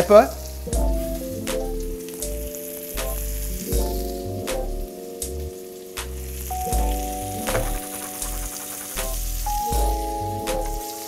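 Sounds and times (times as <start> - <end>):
background music: 0.0 - 11.0
fish frying in oil: 5.2 - 11.0.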